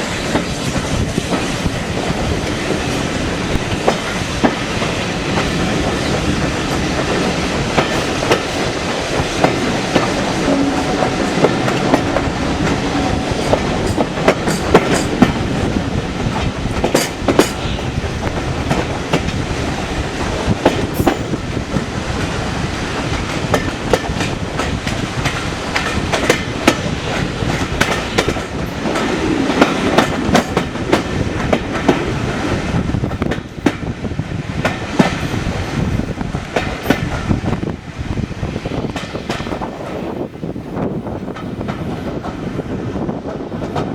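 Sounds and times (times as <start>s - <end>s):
train rumbling: 0.0s - 43.9s.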